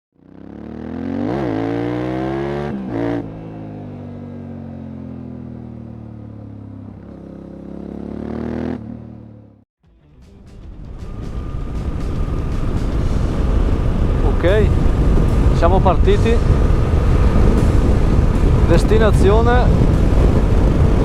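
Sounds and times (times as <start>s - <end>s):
motorcycle engine revving: 0.1s - 9.6s, 11.0s - 21.0s.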